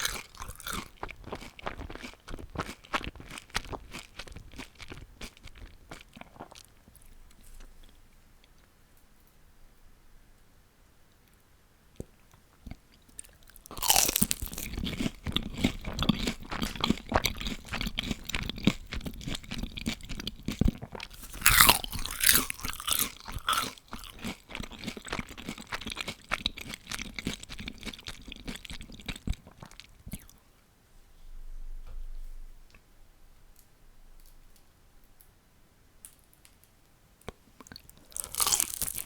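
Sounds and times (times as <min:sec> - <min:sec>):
loud crunching bite: 0:00.0 - 0:06.7, 0:13.2 - 0:30.3, 0:37.9 - 0:39.0
crunchy chewing of fried food: 0:00.0 - 0:08.6, 0:12.3 - 0:30.4, 0:37.6 - 0:39.0.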